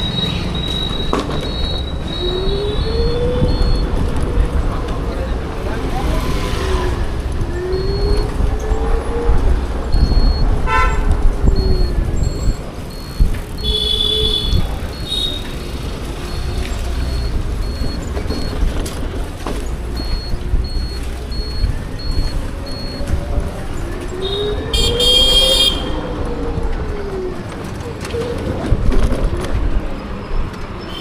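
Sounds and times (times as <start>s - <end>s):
wind and road rumble: 0.0s - 31.0s
vehicle horn honks: 10.6s - 11.1s, 13.6s - 15.3s, 24.8s - 26.0s
rapid high beeping: 11.6s - 15.4s.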